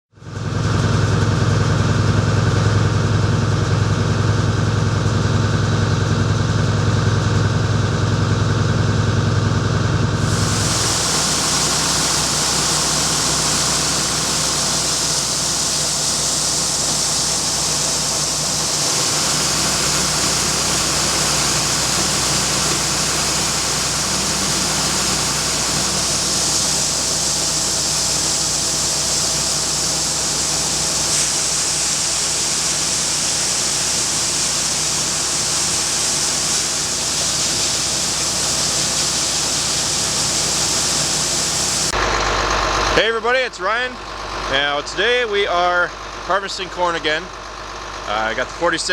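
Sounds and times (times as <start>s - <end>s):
diesel engine running: 0.2s - 48.9s
rushing hiss: 10.2s - 42.0s.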